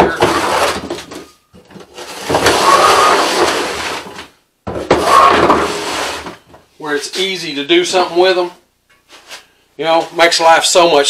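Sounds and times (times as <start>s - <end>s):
sweet potatoes scraping and rolling: 0.0s - 4.3s, 4.9s - 6.5s.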